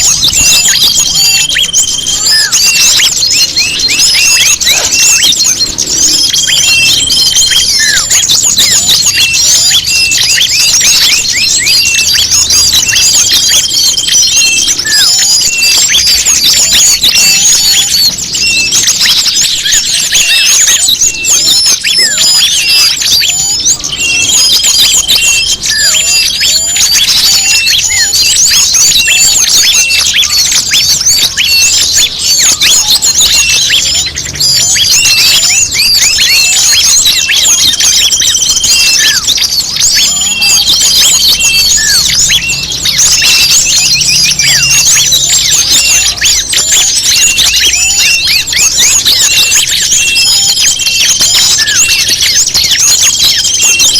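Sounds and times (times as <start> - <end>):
songbirds chirping: 0.0 - 53.9.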